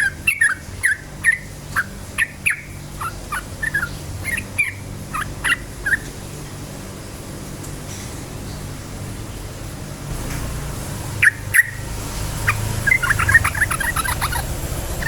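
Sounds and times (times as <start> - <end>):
bird chirping: 0.0 - 6.2, 10.9 - 15.0.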